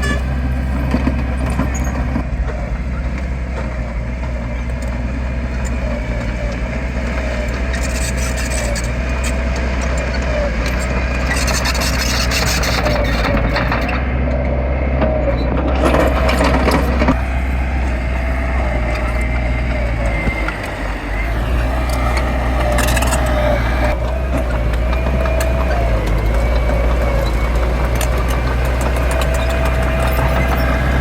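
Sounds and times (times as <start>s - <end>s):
heavy machinery diesel engine: 0.0s - 31.0s
wavering whine: 15.3s - 31.0s.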